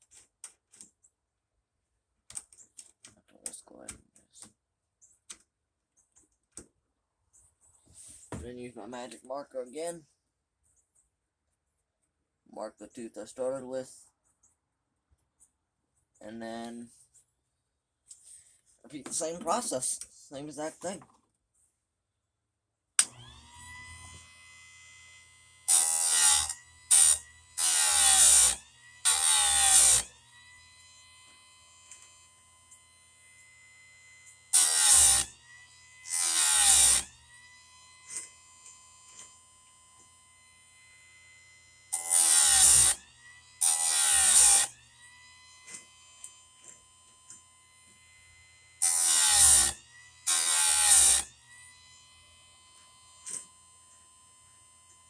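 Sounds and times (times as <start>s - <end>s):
grinder motor whine: 23.0s - 55.0s
grinding wheel on chain teeth: 25.7s - 30.9s, 34.2s - 37.1s, 41.9s - 44.8s, 48.8s - 51.9s.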